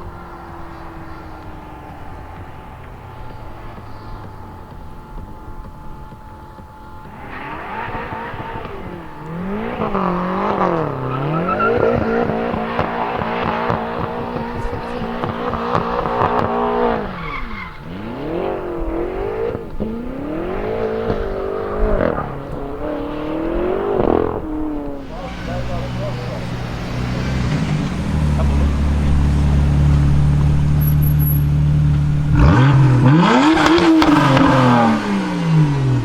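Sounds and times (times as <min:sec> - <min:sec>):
car engine revving hard: 0:00.0 - 0:36.0.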